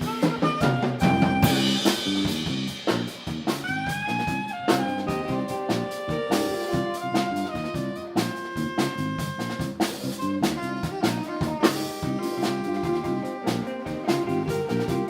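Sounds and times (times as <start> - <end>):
drum kit beat: 0.0 - 15.0
live jazz band playing: 0.0 - 15.0
sustained horn lines: 3.6 - 15.0.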